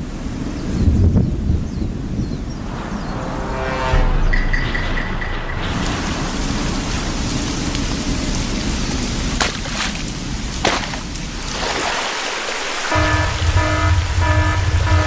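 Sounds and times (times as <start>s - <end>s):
thunder cracks: 2.4s - 9.4s, 12.9s - 15.0s
heavy rain: 2.5s - 15.0s.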